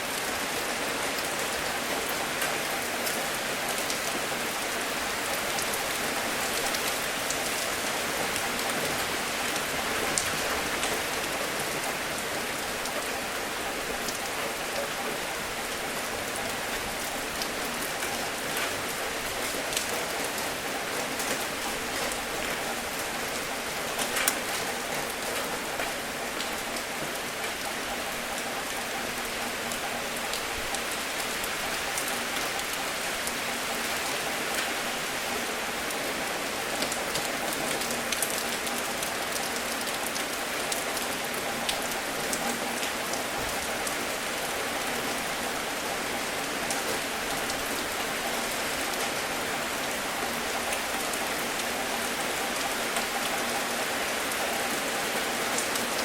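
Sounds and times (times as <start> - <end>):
steady rain falling: 0.0 - 56.0
raindrops ticking: 5.3 - 56.0.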